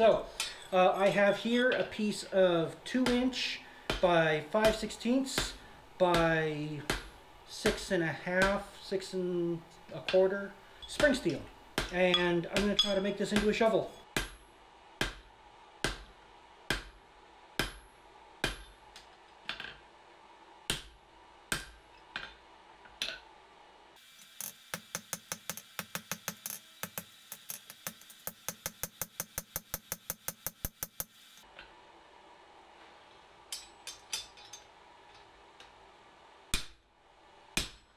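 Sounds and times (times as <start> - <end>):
hammer striking steel on anvil: 0.4 - 0.8, 3.0 - 6.3, 6.9 - 7.1, 8.4 - 8.7, 10.8 - 14.4, 17.6 - 18.8, 21.5 - 22.3, 33.5 - 34.7, 37.6 - 37.9.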